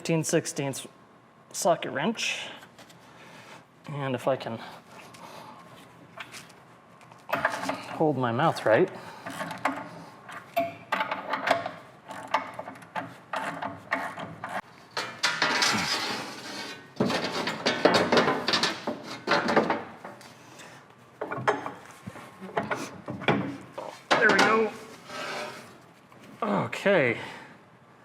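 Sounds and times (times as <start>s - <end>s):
metal scraping: 13.4s - 17.9s, 24.2s - 25.8s.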